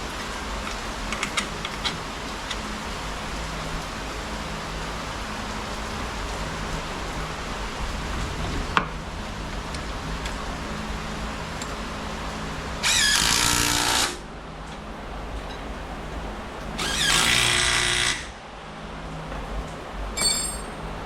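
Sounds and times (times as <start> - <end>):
rain hiss: 0.0 - 20.2
power drill driving a screw: 12.8 - 14.2, 16.8 - 18.3.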